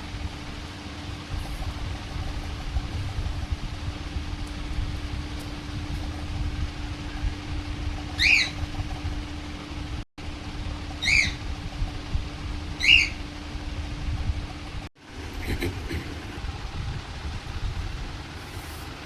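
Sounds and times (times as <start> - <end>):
steady low hum: 0.0 - 19.0
parrot squawking: 8.2 - 8.6, 11.0 - 11.5, 12.8 - 13.2.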